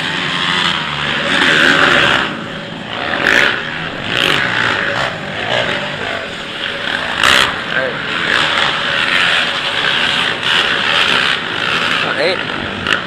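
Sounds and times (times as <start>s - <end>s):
quad engines revving: 0.0s - 13.0s.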